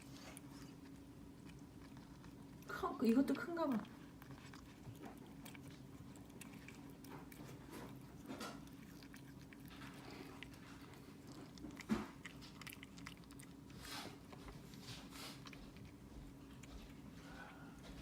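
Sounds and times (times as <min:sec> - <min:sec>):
cat chewing: 0:00.0 - 0:18.0.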